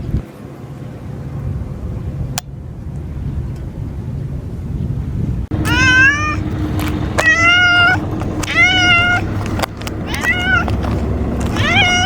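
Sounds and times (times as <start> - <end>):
cat meowing: 5.6 - 6.4, 7.2 - 9.4, 10.0 - 10.9, 11.5 - 12.0.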